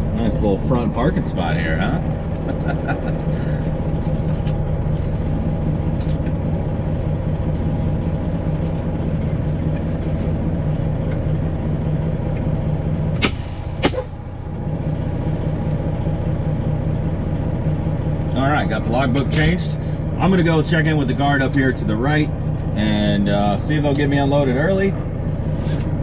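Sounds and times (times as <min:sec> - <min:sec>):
diesel truck engine idling: 0:00.0 - 0:26.0
air brake hisses: 0:13.2 - 0:14.1.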